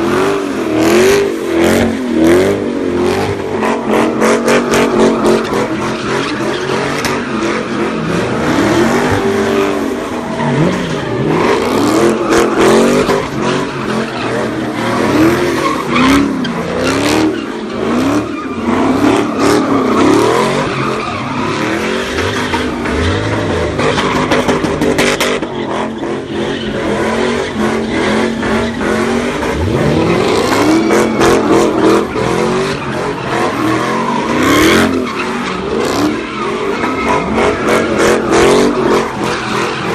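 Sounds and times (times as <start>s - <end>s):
car engine revving hard: 0.0s - 39.9s
tyres squealing: 2.9s - 39.9s.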